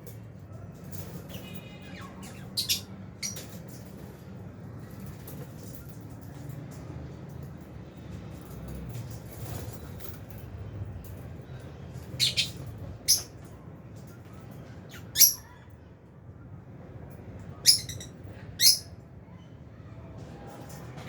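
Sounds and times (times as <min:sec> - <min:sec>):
lovebirds chirping shrilly: 0:01.3 - 0:03.5, 0:12.2 - 0:13.3, 0:14.9 - 0:15.5, 0:17.6 - 0:18.9.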